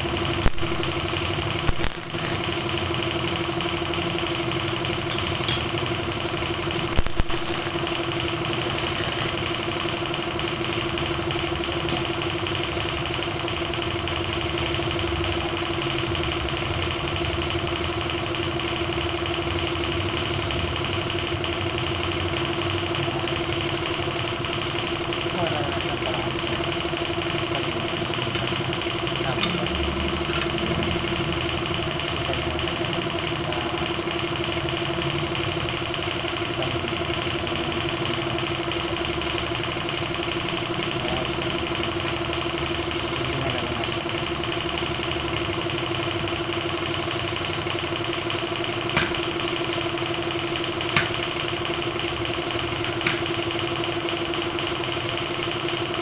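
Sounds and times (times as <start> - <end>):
machine humming: 0.0 - 2.6, 6.1 - 9.7
sharp clicks: 0.4 - 1.1, 1.7 - 2.4, 6.1 - 9.5.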